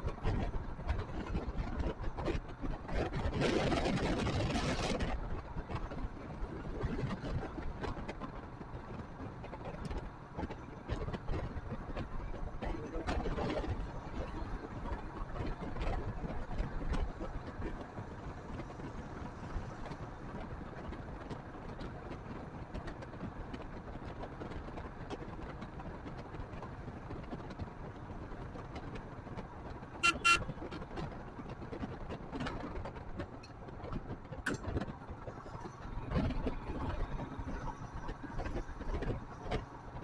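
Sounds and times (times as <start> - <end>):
motorcycle wind and road noise: 0.0 - 40.0
vehicle horn beep: 30.0 - 30.5.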